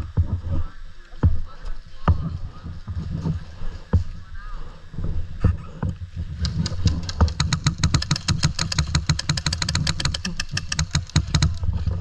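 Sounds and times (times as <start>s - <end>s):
wind on microphone: 0.0s - 12.0s
airsoft gun rapid firing: 6.4s - 11.6s.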